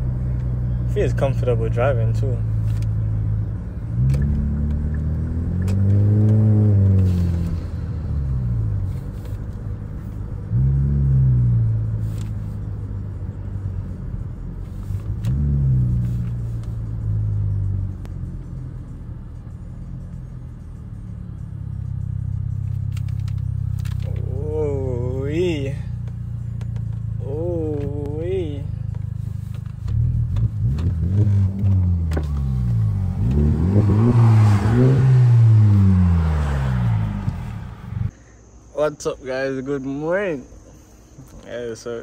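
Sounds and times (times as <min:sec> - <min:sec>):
low car drone: 0:00.0 - 0:41.9
turbocharged car engine revving: 0:03.1 - 0:08.9, 0:15.1 - 0:22.8, 0:29.8 - 0:38.1.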